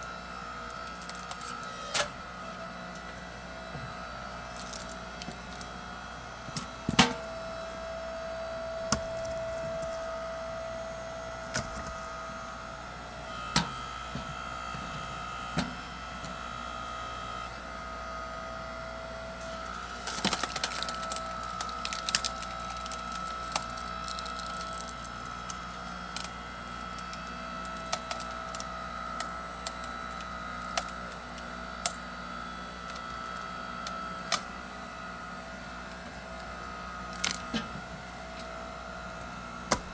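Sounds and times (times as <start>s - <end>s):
log splitter engine whine: 0.0s - 39.9s
wood splintering crackle: 19.6s - 32.0s
wood cracking and splitting: 19.7s - 32.0s, 39.7s - 39.9s.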